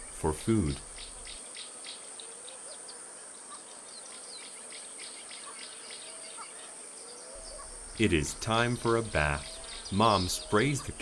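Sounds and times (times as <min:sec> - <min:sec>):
faint bird calls: 0:00.0 - 0:11.0
insects chirping: 0:00.0 - 0:11.0.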